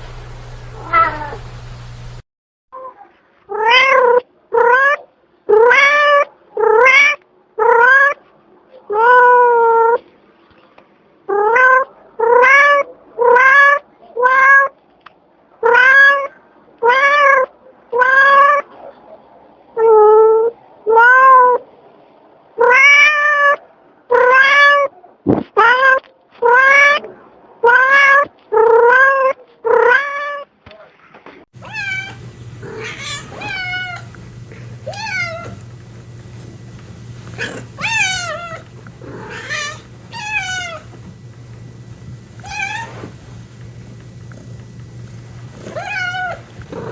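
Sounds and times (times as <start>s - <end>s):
steady low hum: 0.0s - 2.2s, 31.6s - 46.9s
cat meowing: 0.8s - 1.4s, 2.8s - 8.2s, 22.6s - 24.9s, 31.6s - 43.7s, 44.4s - 46.9s.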